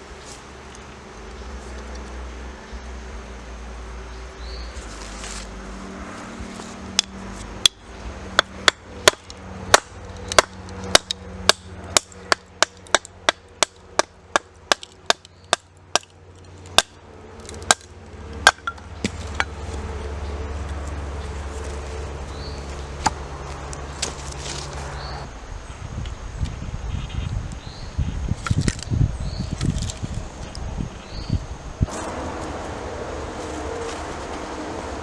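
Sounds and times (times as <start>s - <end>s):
wood chopping strikes: 8.4s - 16.1s, 16.7s - 19.6s, 23.0s - 23.2s.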